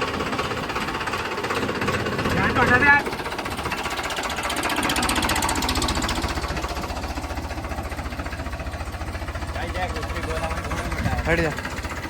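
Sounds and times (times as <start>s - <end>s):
tractor diesel engine knocking: 0.0s - 12.0s.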